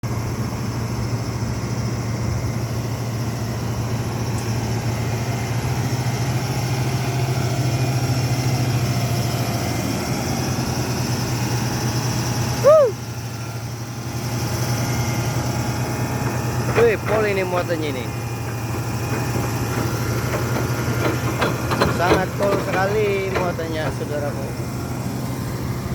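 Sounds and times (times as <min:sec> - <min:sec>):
truck engine idling: 0:00.0 - 0:25.9
person exclaiming loudly: 0:12.6 - 0:13.0.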